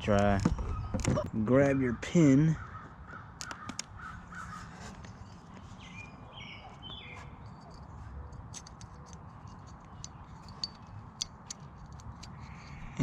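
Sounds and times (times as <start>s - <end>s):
bird chirps: 2.6s - 8.3s
small metal parts clicking: 7.4s - 13.0s.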